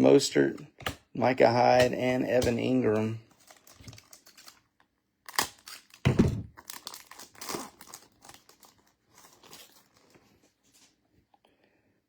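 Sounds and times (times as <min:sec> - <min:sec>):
foil wrapper crinkling: 0:02.4 - 0:11.0.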